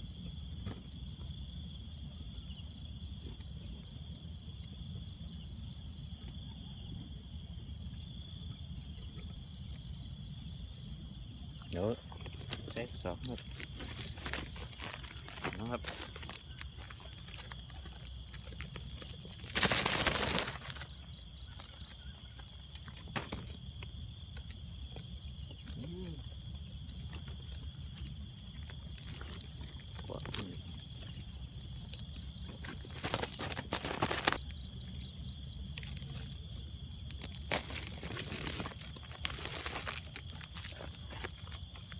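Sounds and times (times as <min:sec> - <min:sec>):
insects chirring: 0:00.0 - 0:41.9.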